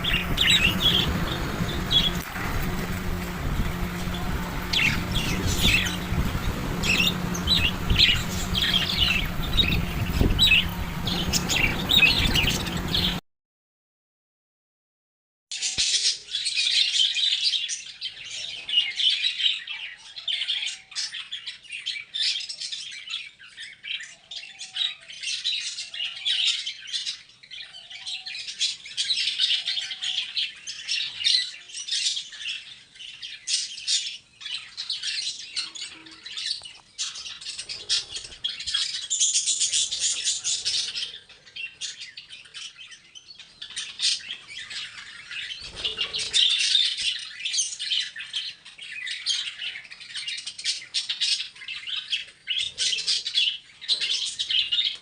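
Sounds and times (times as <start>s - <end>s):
parrots chirping and squawking: 0.0s - 13.2s, 33.7s - 55.0s.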